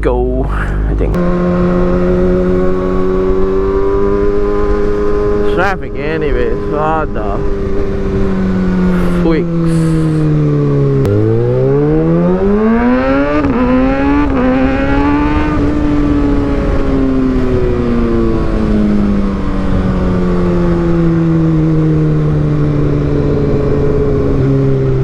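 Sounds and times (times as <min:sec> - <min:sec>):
motorcycle engine accelerating: 0:00.6 - 0:25.0.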